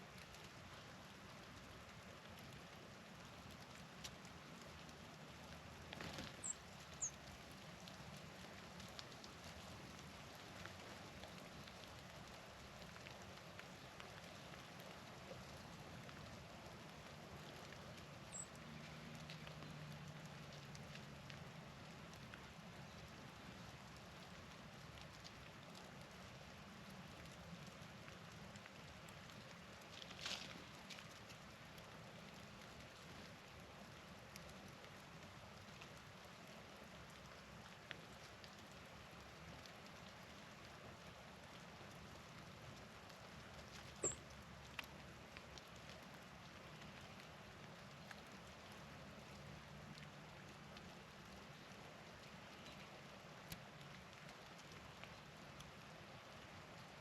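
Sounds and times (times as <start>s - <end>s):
rustle: 0.0s - 57.0s
small birds chipping: 6.0s - 7.3s, 18.3s - 19.8s, 43.8s - 44.3s.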